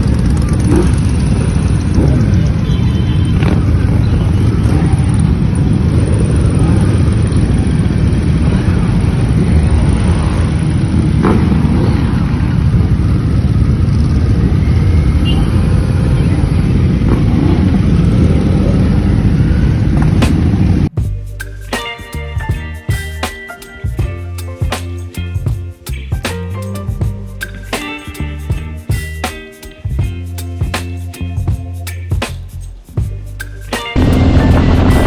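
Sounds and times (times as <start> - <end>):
motorcycle engine rumble: 31.4 - 35.0
wind rushing: 34.0 - 35.0.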